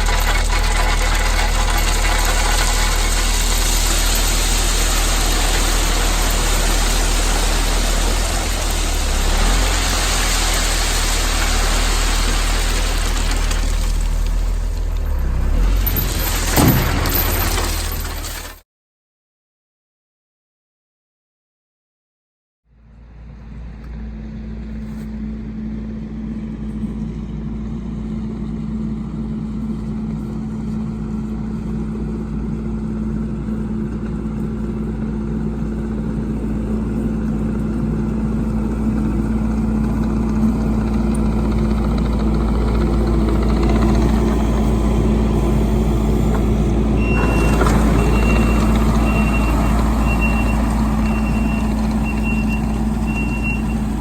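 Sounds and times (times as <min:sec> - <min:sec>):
heavy vehicle engine running: 0:00.0 - 0:18.6, 0:22.9 - 0:54.0
reversing alarm beeping: 0:47.0 - 0:54.0.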